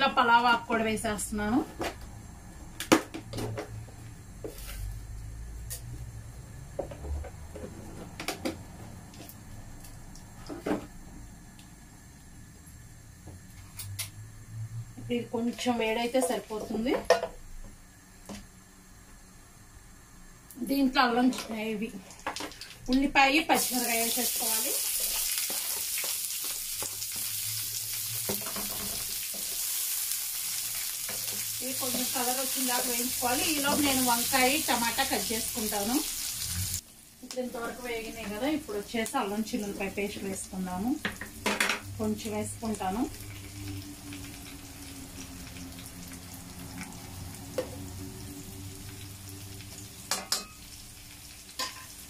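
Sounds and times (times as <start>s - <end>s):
onions sizzling in butter: 22.0s - 52.0s
low hum: 41.8s - 50.1s.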